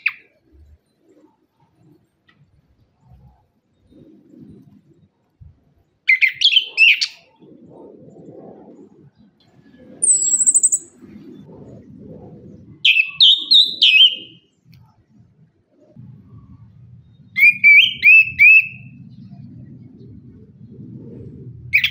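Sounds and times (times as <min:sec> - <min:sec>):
thrush warbled whistles: 0:09.6 - 0:11.8, 0:12.7 - 0:14.5, 0:17.2 - 0:19.4
thin high bird trill: 0:10.0 - 0:11.0.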